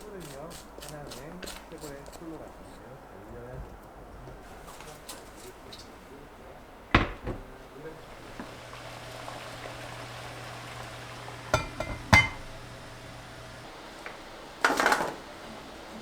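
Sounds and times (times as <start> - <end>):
low steady hum: 7.1 - 13.8
dishes clinking: 10.6 - 13.2.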